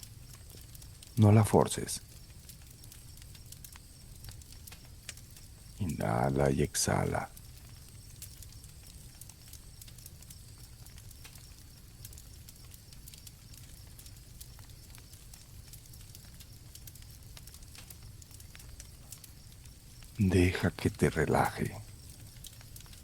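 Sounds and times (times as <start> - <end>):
campfire crackling: 0.0 - 23.0
crickets chirring: 0.0 - 23.0.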